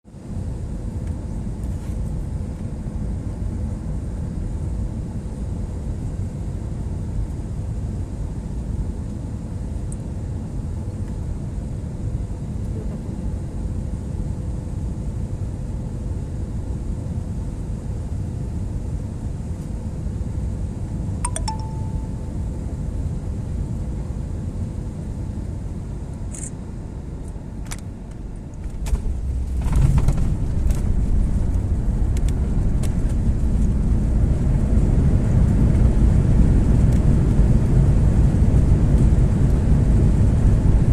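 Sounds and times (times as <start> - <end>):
airliner engines and airflow drone: 0.0 - 40.9
faint steady hum: 0.1 - 40.9
short chime tone: 21.3 - 22.3.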